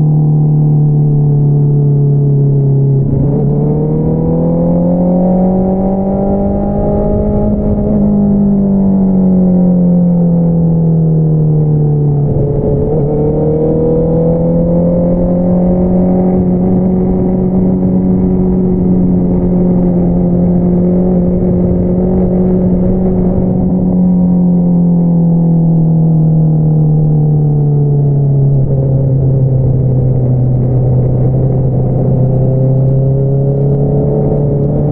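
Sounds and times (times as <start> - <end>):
motorcycle engine and exhaust: 0.0 - 34.9.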